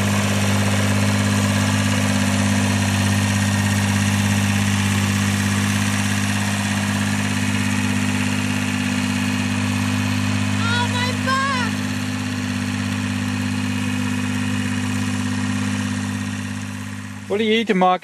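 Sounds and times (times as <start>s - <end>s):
tractor engine idling: 0.0s - 18.0s.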